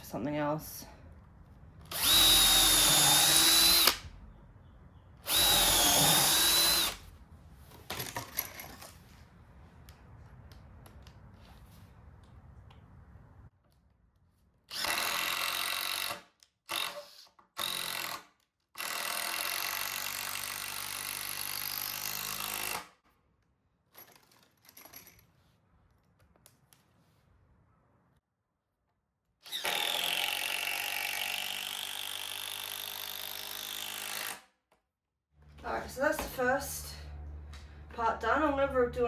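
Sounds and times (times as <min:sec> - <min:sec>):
power drill driving screws: 0:01.9 - 0:04.1, 0:05.2 - 0:07.1, 0:14.7 - 0:22.9, 0:29.4 - 0:34.5.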